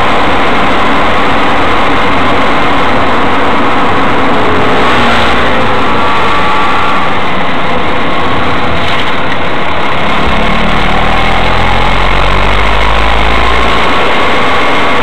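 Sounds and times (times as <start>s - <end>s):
car engine running: 0.0s - 15.0s
deep low drone: 9.7s - 15.0s.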